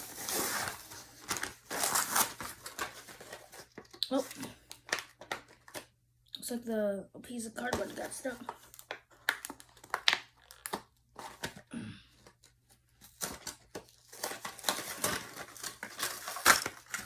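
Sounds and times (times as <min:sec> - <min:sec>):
cardboard packaging tearing: 0:00.0 - 0:05.8, 0:08.7 - 0:11.6, 0:13.0 - 0:17.0
crinkling and rustling: 0:00.0 - 0:05.9, 0:07.6 - 0:17.0.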